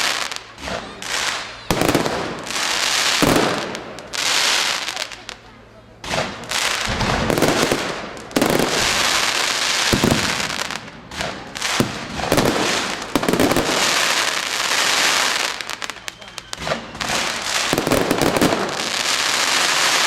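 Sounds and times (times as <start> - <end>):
fireworks bangs: 0.0 - 20.0
fireworks crackling: 0.0 - 20.0.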